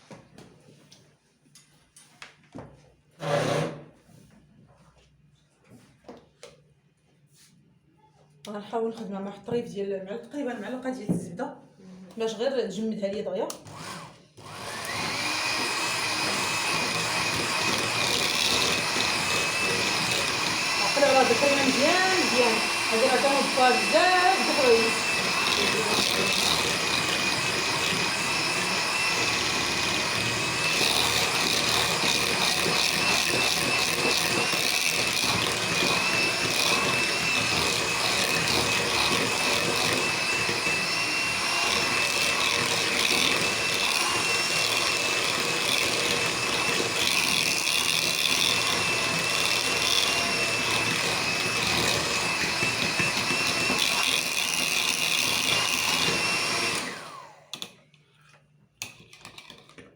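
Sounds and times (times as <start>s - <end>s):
electric mixer whining: 13.6s - 57.8s.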